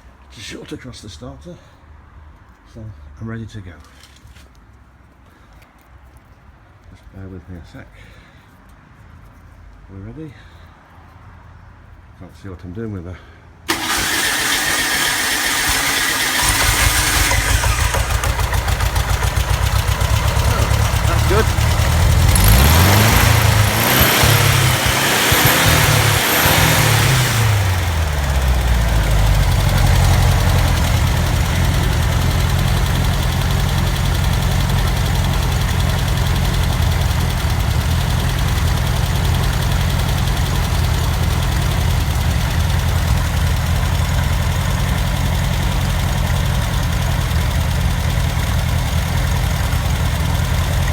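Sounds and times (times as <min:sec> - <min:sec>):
engine idling: 0:13.7 - 0:50.9.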